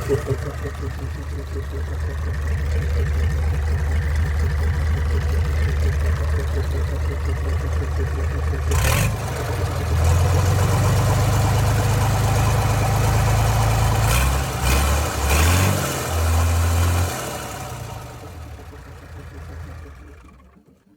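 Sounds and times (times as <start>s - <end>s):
diesel engine running: 0.0s - 20.6s.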